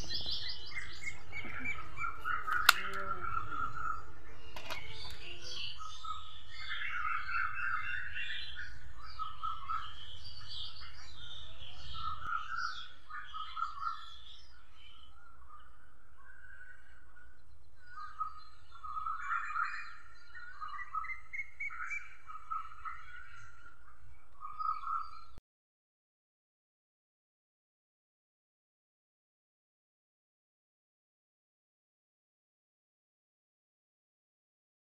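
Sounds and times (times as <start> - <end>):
small birds chirping: 0.0 - 25.4.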